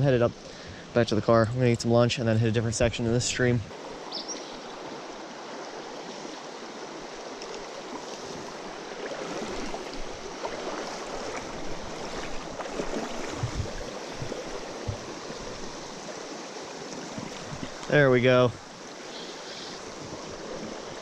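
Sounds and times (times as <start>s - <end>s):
stream water flowing and splashing: 0.0s - 21.0s
low knocks: 13.4s - 15.2s.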